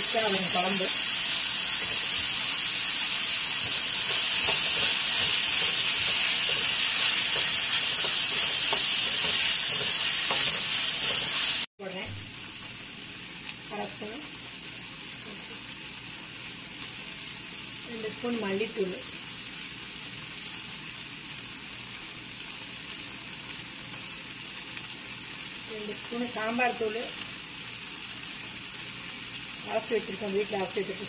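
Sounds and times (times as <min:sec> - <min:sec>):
vegetables sizzling in oil: 0:00.0 - 0:31.0.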